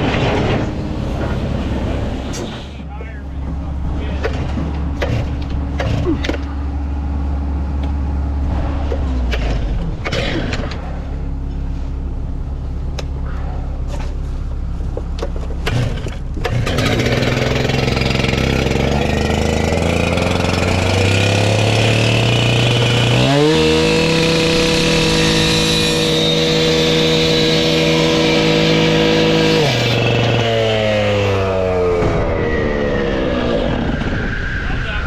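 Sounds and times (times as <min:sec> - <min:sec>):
engine running steadily: 0:00.0 - 0:35.0
cut-off saw engine revving: 0:15.6 - 0:34.3.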